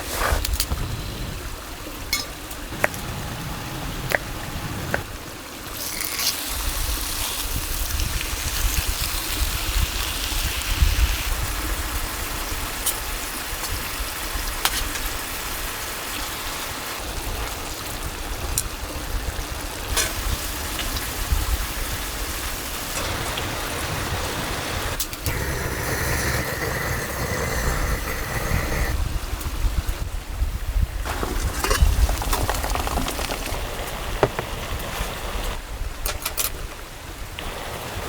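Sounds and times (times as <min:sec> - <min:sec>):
rushing water: 0:01.4 - 0:25.0.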